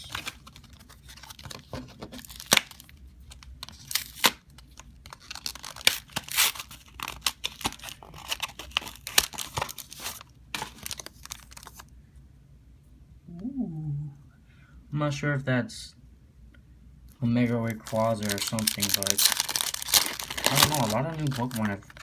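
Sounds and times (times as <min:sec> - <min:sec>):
foil wrapper ripping and rustling: 0:00.0 - 0:11.8, 0:17.7 - 0:22.0.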